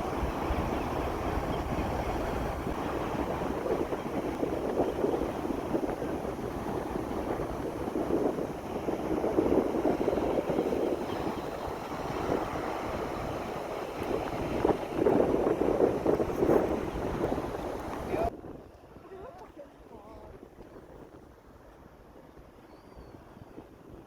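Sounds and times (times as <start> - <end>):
water rushing: 0.0 - 18.3
wind buffeting microphone: 0.0 - 24.0.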